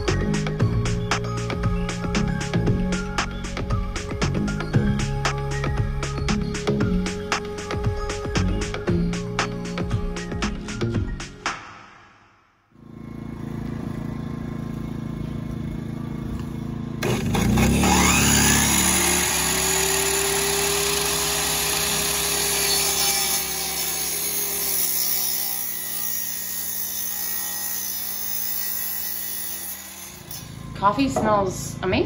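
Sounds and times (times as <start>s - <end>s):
miter saw cutting wood: 17.0s - 30.8s.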